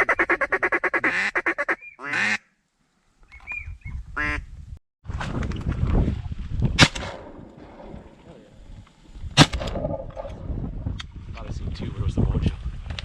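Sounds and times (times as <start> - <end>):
duck quacks: 0.0 - 2.5
rustling wind-like noise: 3.5 - 13.0.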